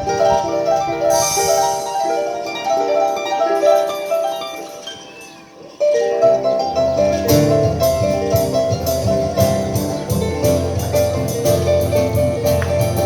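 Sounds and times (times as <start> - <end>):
harp playing lively piece: 0.0 - 13.0.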